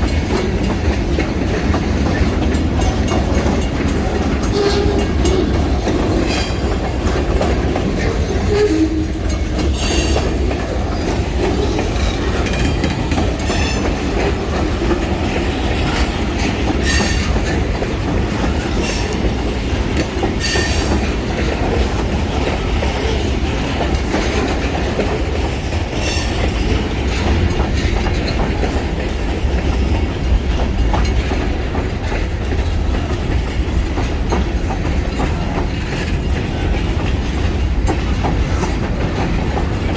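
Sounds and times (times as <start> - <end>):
freight train rumble: 0.0 - 39.9
train wheels clicking over rail joints: 0.0 - 39.9
train wheel squeal: 4.4 - 7.2, 8.0 - 14.1, 15.8 - 17.6, 20.3 - 21.2, 25.9 - 27.4.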